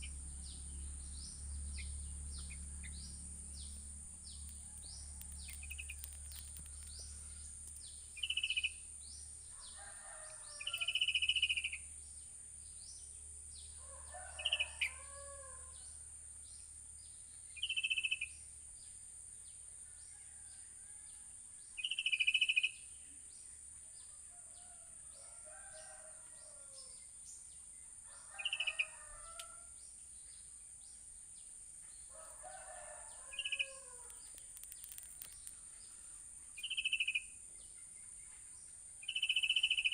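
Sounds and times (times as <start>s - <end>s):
songbirds calling: 0.0s - 11.9s, 31.9s - 39.9s.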